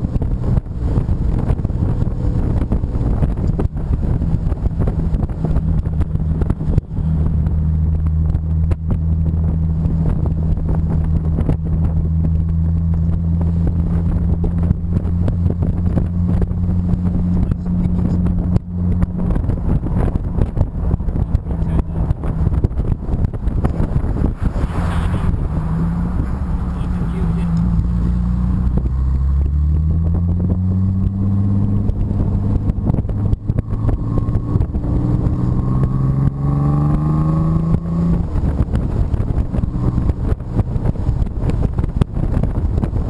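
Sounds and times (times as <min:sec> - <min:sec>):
car engine cruising: 0:00.0 - 0:43.0
wind rushing over microphone: 0:00.0 - 0:43.0.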